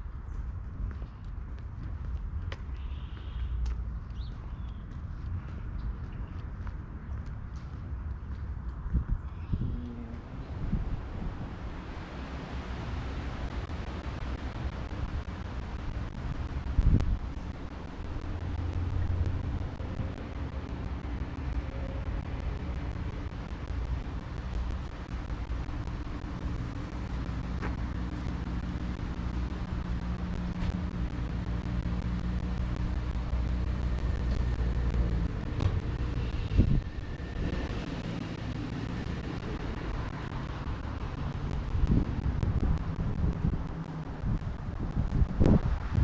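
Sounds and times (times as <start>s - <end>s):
vehicle engine humming: 0.0s - 46.0s.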